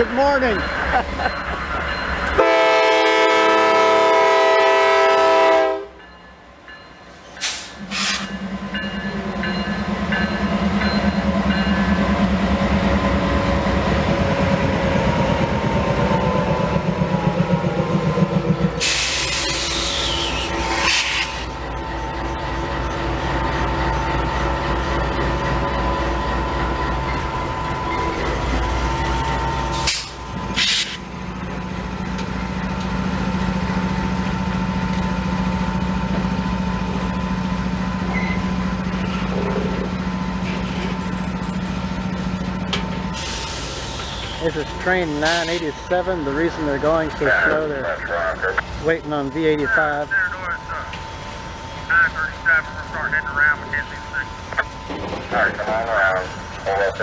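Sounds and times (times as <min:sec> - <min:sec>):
train rolling over rails: 0:00.0 - 0:57.0
locomotive horn: 0:02.4 - 0:06.0.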